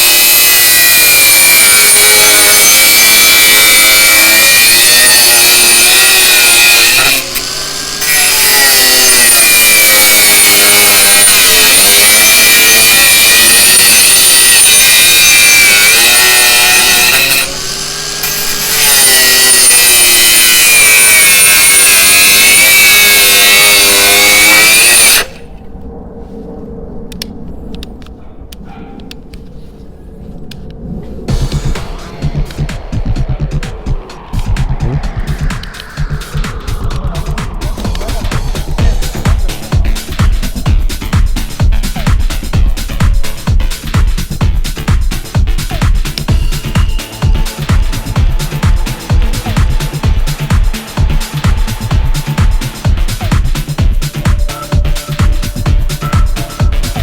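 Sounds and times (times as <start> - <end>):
angle grinder running under load: 0.0 - 25.4, 46.0 - 57.0.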